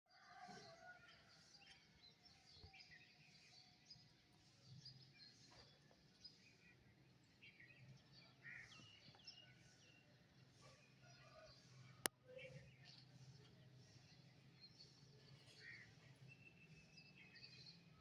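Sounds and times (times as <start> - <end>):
small birds chirping: 12.4 - 18.0.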